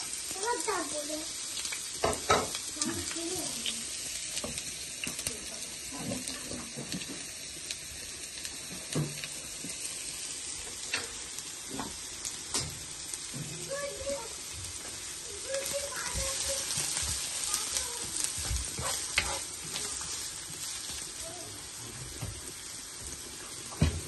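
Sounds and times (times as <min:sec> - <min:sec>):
food sizzling in a pan: 0:00.0 - 0:24.0
utensil clicking against pan: 0:18.5 - 0:20.1.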